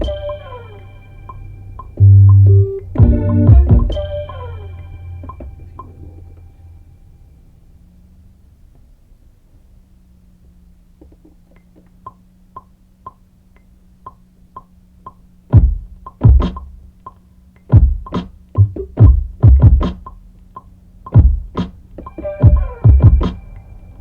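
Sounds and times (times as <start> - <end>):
heavy kick drums: 0.0 - 0.3, 1.9 - 4.2, 15.5 - 17.0, 17.7 - 20.2, 21.1 - 23.5
faint low hum: 0.0 - 24.0
light ticking hits: 10.5 - 23.8
snare and hat hits: 15.6 - 16.8, 17.8 - 20.2, 21.2 - 21.8.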